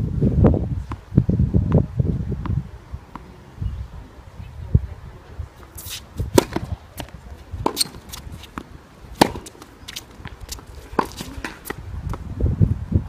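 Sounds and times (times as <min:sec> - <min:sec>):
footsteps on court: 0:05.6 - 0:12.2
racket hitting tennis ball: 0:05.8 - 0:11.8
tennis ball bouncing: 0:05.8 - 0:12.2.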